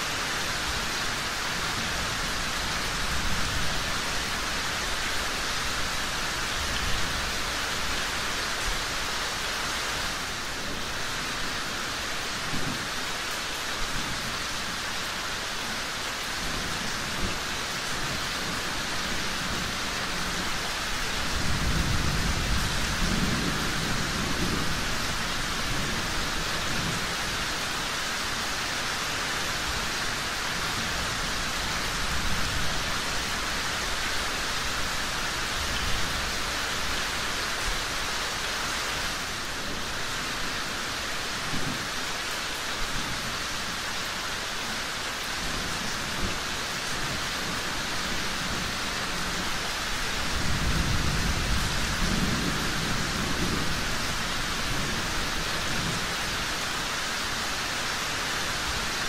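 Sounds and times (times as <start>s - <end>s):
steady rain: 0.0s - 59.0s
low rumble of thunder: 16.5s - 27.4s, 45.4s - 56.4s.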